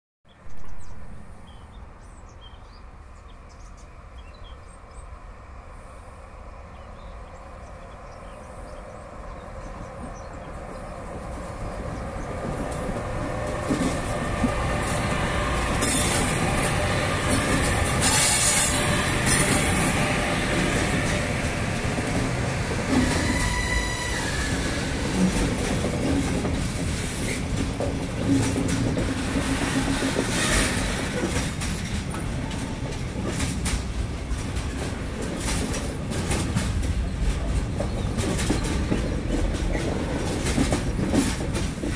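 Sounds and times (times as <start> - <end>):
electric locomotives passing: 0.8 - 41.9
wagons rumbling on rails: 6.4 - 41.9
high wheel squeals: 15.8 - 16.4, 17.9 - 20.0, 23.0 - 25.0.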